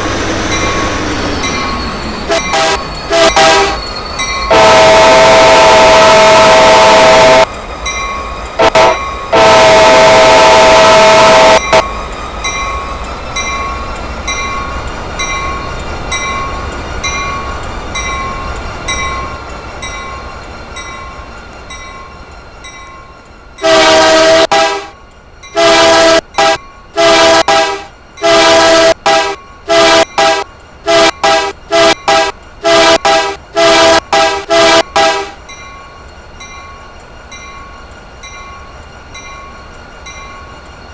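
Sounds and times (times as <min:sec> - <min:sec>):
passing train rumble: 0:00.0 - 0:40.9
locomotive air horn blasts: 0:02.3 - 0:03.8, 0:04.5 - 0:07.5, 0:08.6 - 0:11.8, 0:23.6 - 0:25.0, 0:25.6 - 0:35.4.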